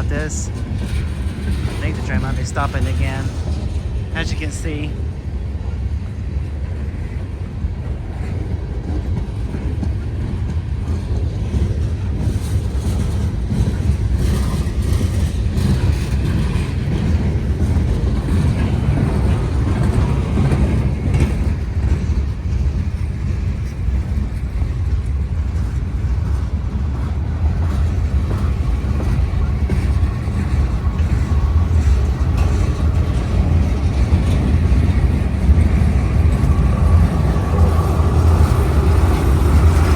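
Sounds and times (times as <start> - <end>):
freight train rumbling past: 0.0 - 39.9
wheels clicking over rail joints: 8.3 - 39.9.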